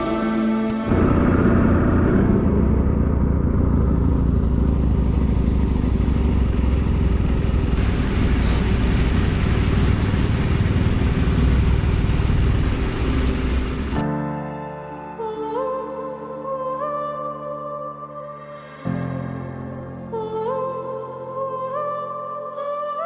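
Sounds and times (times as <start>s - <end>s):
motorcycle engine running: 0.9s - 14.0s
wind and road noise: 0.9s - 14.0s.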